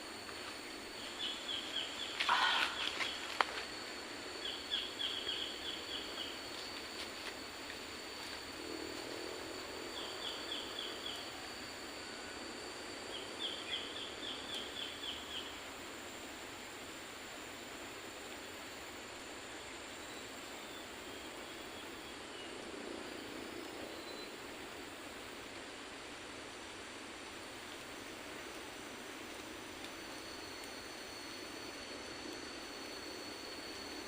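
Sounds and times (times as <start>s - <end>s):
high insect drone: 0.0s - 34.0s
steady hiss: 0.0s - 34.0s.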